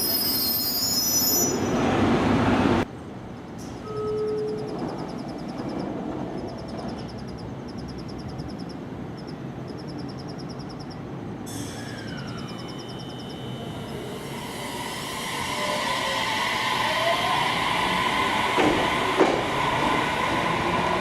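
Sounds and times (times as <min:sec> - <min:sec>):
train high squeal: 0:00.0 - 0:01.9, 0:11.5 - 0:21.0.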